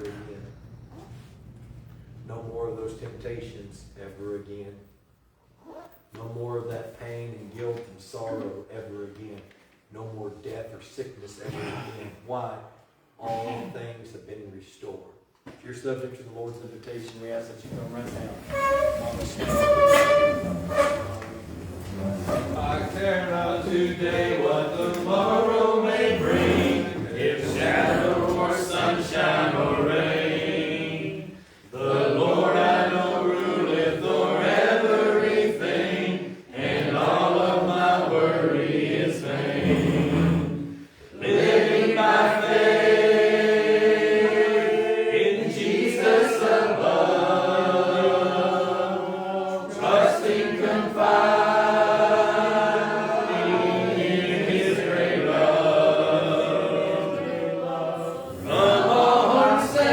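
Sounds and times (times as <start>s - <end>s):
congregation singing a hymn: 0.0s - 3.5s, 17.6s - 59.9s.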